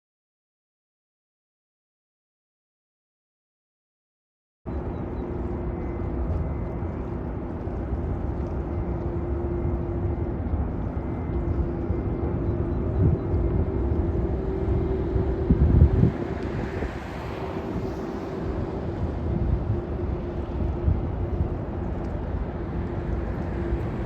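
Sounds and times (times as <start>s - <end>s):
jet engines rumbling: 4.7s - 24.0s
steady hum: 4.7s - 24.0s
wind on microphone: 4.7s - 24.0s.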